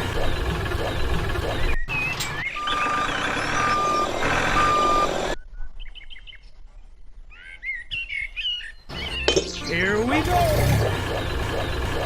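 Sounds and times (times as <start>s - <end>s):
engine noise: 0.0s - 5.4s, 9.4s - 12.0s
vehicle reversing alarm beeping: 0.0s - 5.4s.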